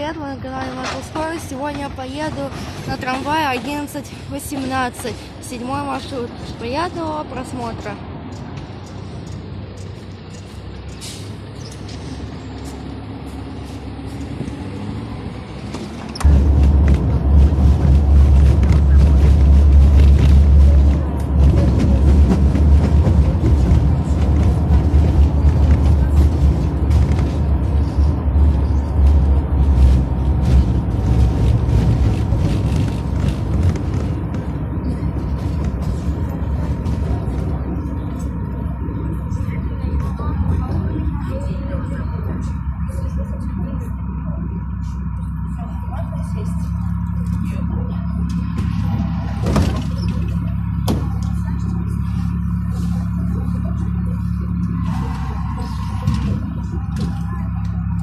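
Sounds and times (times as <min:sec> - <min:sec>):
tram humming: 0:00.0 - 0:58.0
loud low rumble: 0:10.8 - 0:58.0.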